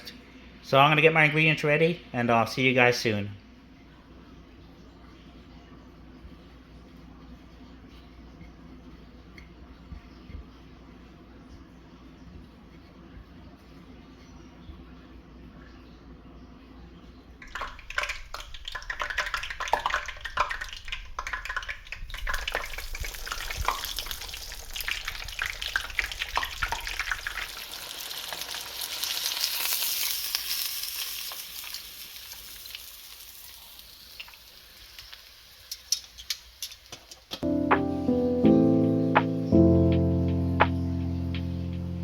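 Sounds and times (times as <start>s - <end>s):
fish frying in hot oil: 17.4s - 37.0s.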